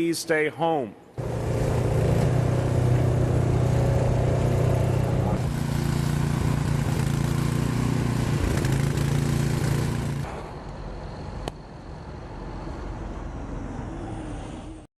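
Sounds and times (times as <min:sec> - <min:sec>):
street noise: 0:00.0 - 0:14.8
vehicle engine humming: 0:01.2 - 0:14.9.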